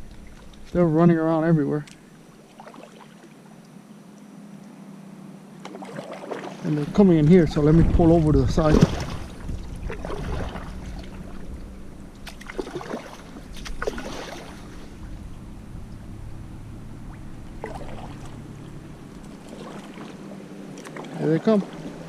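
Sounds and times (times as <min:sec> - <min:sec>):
motorboat engine humming: 0:00.0 - 0:22.0
kayak paddle water swishes: 0:02.3 - 0:03.7, 0:05.6 - 0:15.2, 0:17.0 - 0:22.0.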